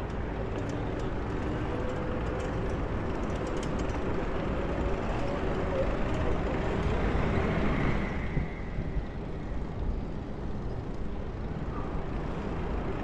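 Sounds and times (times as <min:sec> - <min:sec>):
city traffic rumble: 0:00.6 - 0:07.8.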